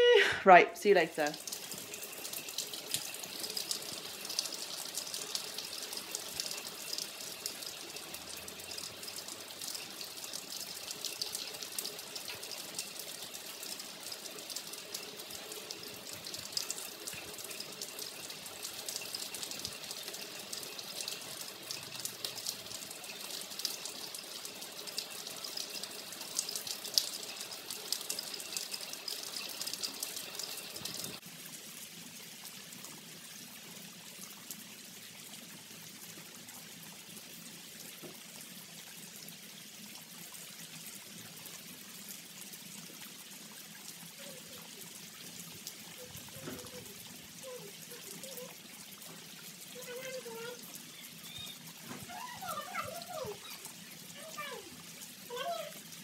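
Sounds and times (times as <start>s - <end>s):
heavy rain on concrete: 1.1s - 34.6s, 41.5s - 56.0s.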